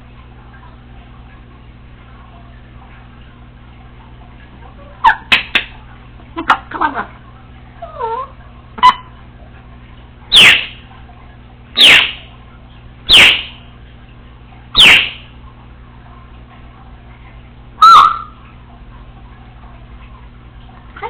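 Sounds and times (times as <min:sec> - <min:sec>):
parrot whistling: 0:10.3 - 0:10.8, 0:11.8 - 0:12.2, 0:13.1 - 0:13.6, 0:14.8 - 0:15.2, 0:17.8 - 0:18.4.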